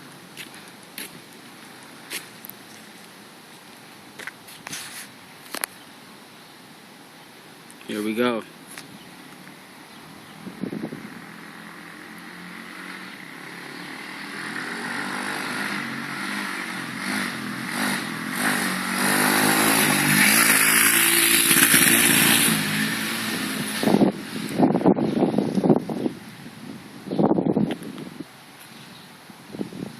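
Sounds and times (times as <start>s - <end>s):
pit bike engine revving: 10.7s - 24.7s
sharp bumps: 14.1s - 24.7s.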